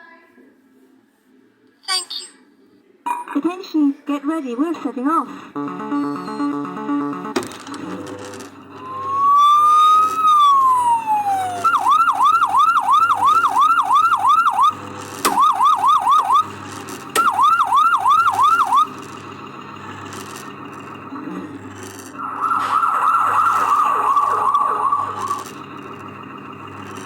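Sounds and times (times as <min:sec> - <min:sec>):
electronic fire-engine siren: 0:05.4 - 0:27.0.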